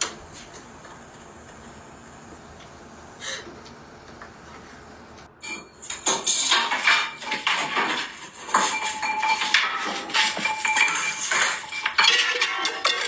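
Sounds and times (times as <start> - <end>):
hard objects clattering and clinking: 5.4 - 13.0.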